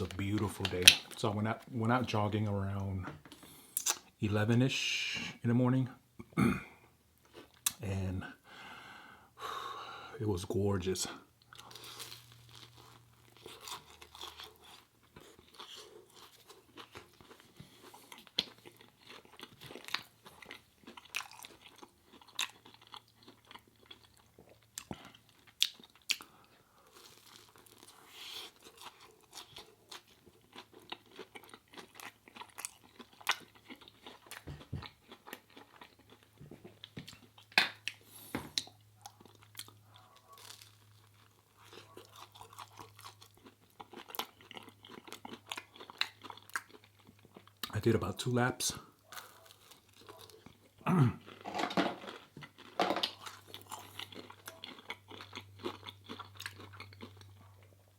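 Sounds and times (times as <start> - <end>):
person chewing food: 7.2 - 7.8, 11.3 - 47.8, 48.8 - 57.9.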